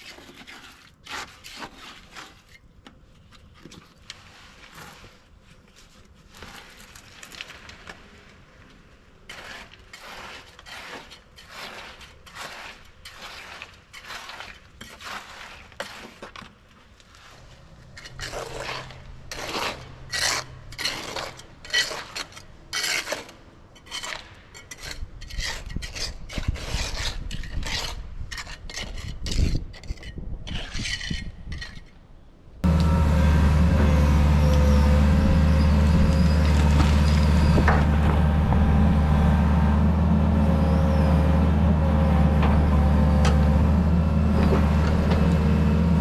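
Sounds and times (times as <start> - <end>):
repeated scraping strokes: 0.0 - 8.4, 9.2 - 16.4, 17.1 - 32.0
low engine rumble: 32.6 - 46.0.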